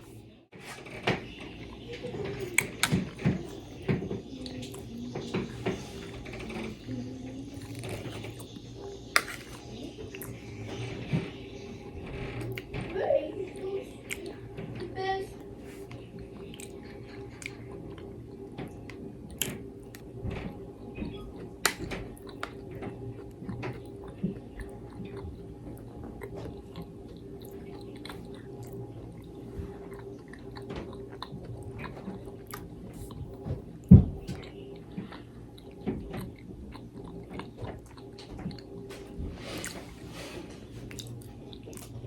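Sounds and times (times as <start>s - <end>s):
steady low hum: 0.0s - 42.0s
person chewing food: 7.5s - 11.2s, 14.0s - 14.4s, 15.4s - 42.0s.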